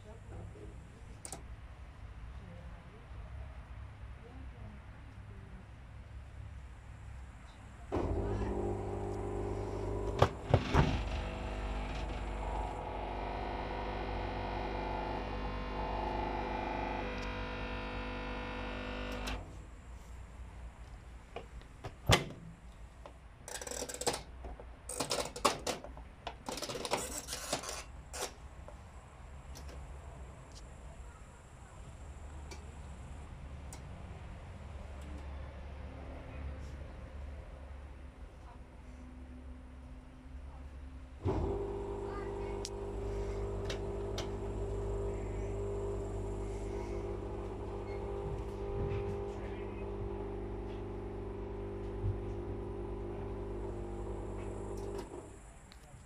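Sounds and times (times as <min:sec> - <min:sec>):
washing machine drain pump humming: 0:08.0 - 0:19.4, 0:41.2 - 0:55.5.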